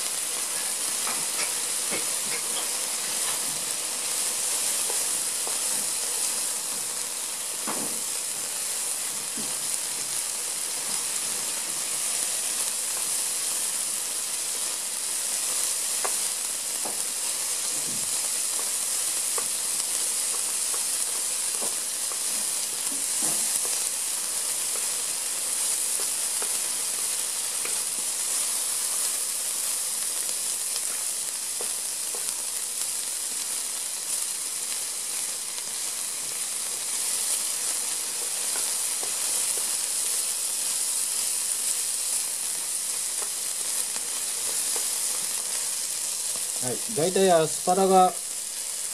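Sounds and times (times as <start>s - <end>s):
food sizzling in hot pan: 0.0s - 48.9s
chopsticks ticking on pan: 18.4s - 23.0s, 25.9s - 27.0s, 42.6s - 45.4s.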